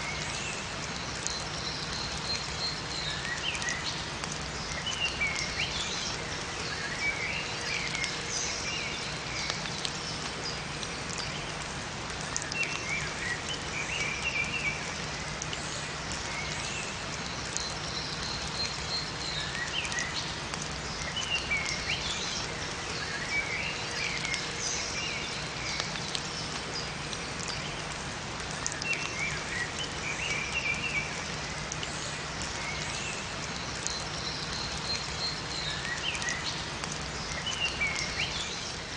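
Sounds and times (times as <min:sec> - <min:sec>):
rain falling in a forest: 0:00.0 - 0:38.9
small birds chirping: 0:28.5 - 0:38.9.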